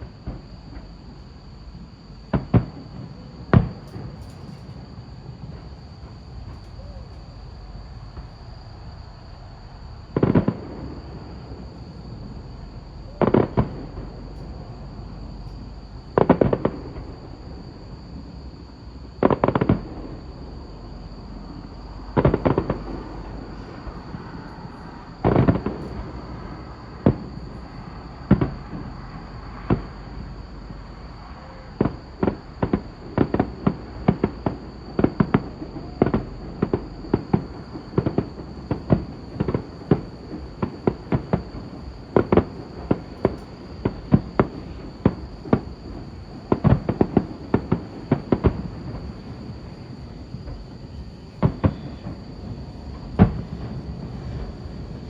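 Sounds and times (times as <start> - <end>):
fireworks booms and crackles: 0.0 - 55.0.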